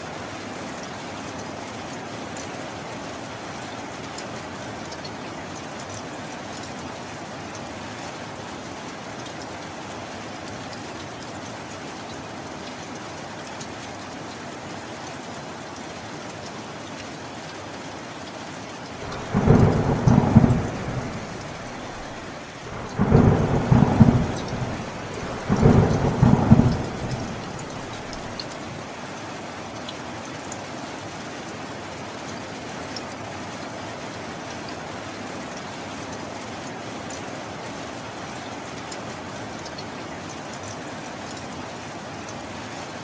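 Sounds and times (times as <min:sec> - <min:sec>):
steady rain: 0:00.0 - 0:43.0
rolls of thunder: 0:19.0 - 0:28.4.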